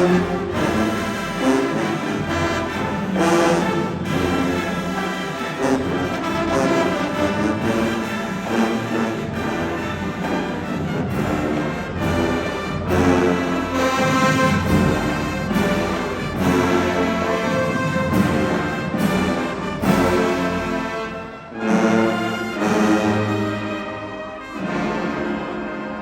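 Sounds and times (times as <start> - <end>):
marching band brass chords: 0.0 - 26.0.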